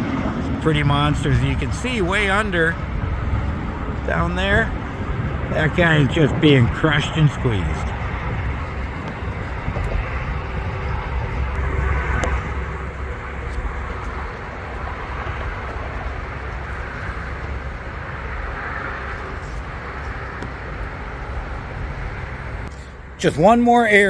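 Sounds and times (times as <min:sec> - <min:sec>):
vehicle passing: 0:00.0 - 0:23.7
road traffic rumble: 0:00.0 - 0:24.0.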